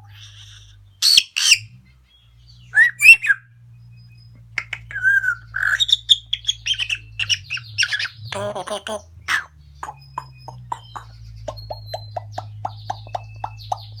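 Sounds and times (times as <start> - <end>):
parrot chattering chirps and whistles: 0.0 - 1.7, 4.6 - 14.0
parrot squawking: 0.0 - 1.7, 4.6 - 14.0.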